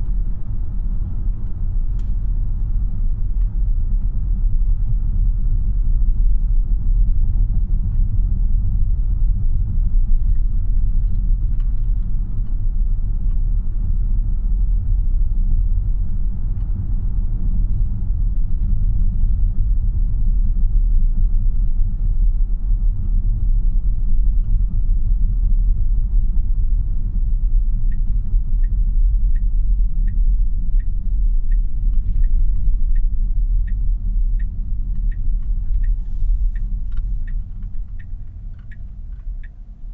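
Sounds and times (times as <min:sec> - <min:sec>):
turn signal ticking: 0:00.0 - 0:04.2, 0:27.9 - 0:39.9
road and tyre noise in car: 0:00.0 - 0:39.9.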